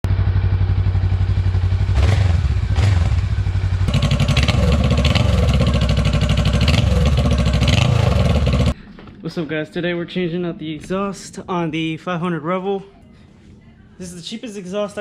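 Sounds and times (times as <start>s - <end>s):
motorcycle engine running: 0.0s - 8.8s
engine throttle blips: 0.1s - 8.8s.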